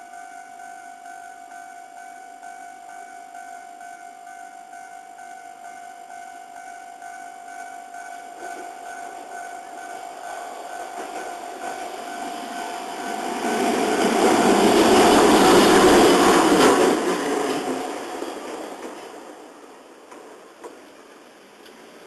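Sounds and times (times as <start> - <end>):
crossing warning bell ringing: 0.0 - 17.2
train passing: 2.5 - 22.0
wheels clacking: 8.4 - 22.0.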